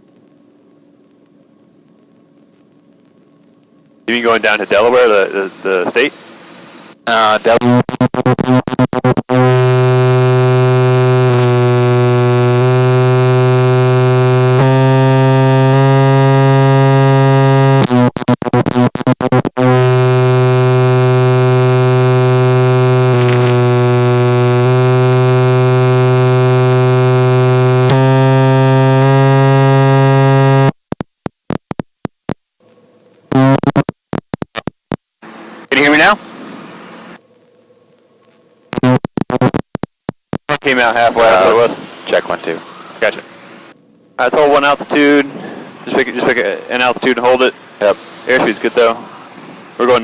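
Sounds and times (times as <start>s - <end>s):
electrical crackling: 7.4s - 37.6s, 38.2s - 42.6s
loud electrical buzz: 7.5s - 32.7s, 33.3s - 37.2s, 38.7s - 40.8s.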